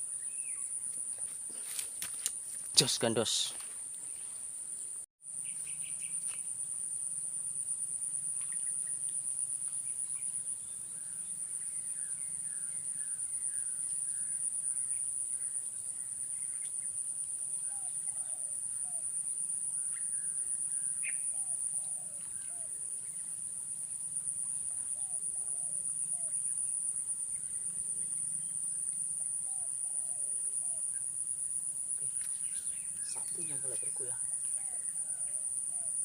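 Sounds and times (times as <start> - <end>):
birds chirping: 32.0 - 34.8
high-pitched insect drone: 32.0 - 35.0.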